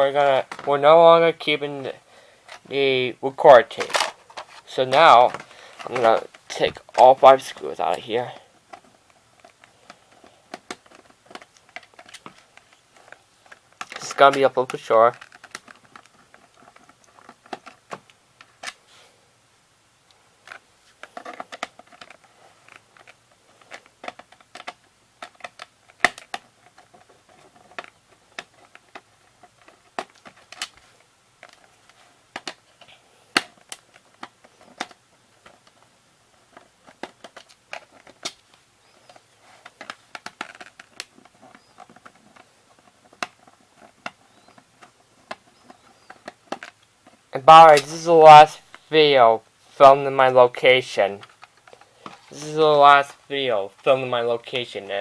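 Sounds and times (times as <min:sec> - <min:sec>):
plastic cassette clicks and taps: 0:09.4 - 0:18.8, 0:20.4 - 0:30.8, 0:31.4 - 0:32.6, 0:33.3 - 0:35.8, 0:36.5 - 0:47.2.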